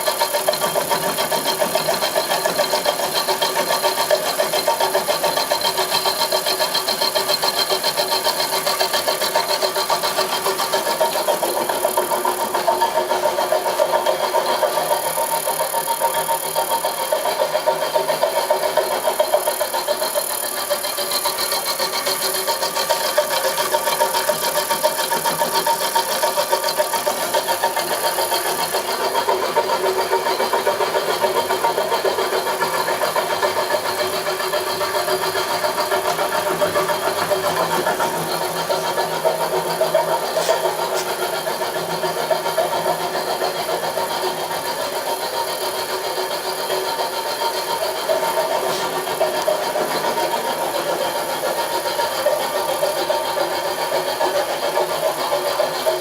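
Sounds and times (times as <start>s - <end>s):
milling machine whirring: 0.0s - 56.0s.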